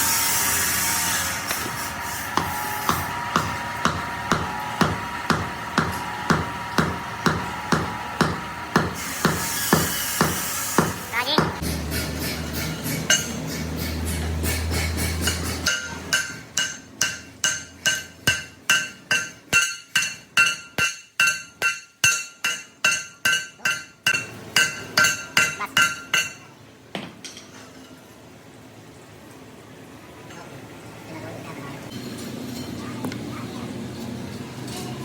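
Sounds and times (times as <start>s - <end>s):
hammer striking steel: 1.5s - 26.5s
low machine hum: 1.8s - 9.9s.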